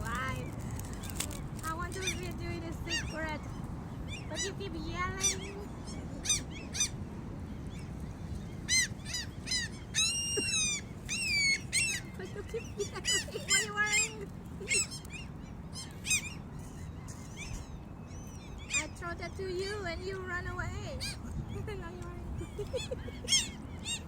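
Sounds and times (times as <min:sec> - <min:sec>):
gulls calling: 0:00.0 - 0:24.0
low background hum: 0:00.0 - 0:24.0.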